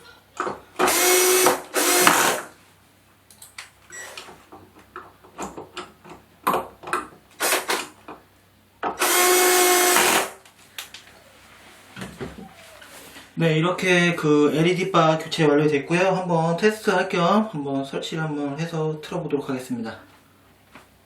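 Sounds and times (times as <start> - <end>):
electric screwdriver whirring: 0.8 - 2.5, 7.4 - 7.9, 9.0 - 10.4.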